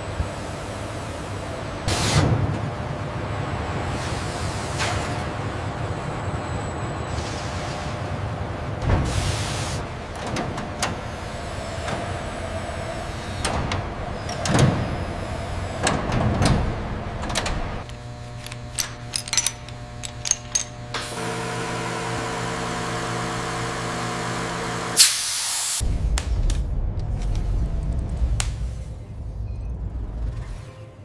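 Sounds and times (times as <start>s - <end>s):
electrical hum with low drone: 9.7s - 25.0s
loud hiss: 25.0s - 25.8s.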